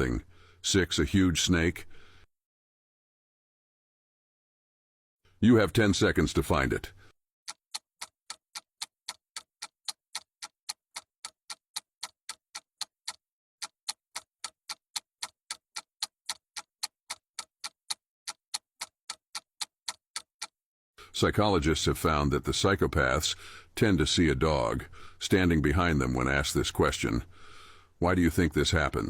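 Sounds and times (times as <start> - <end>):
clock ticking: 5.5 - 20.6, 21.2 - 29.0.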